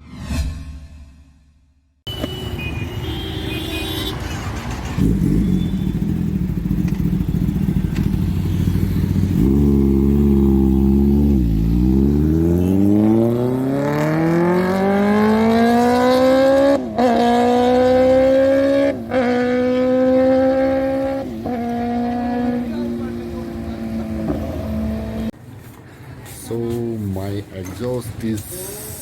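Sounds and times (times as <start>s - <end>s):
motorcycle engine revving: 4.2s - 25.4s.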